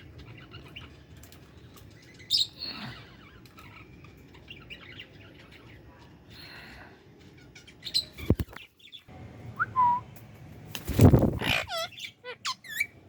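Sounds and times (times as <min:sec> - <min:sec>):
parrots chirping: 0:11.1 - 0:13.0.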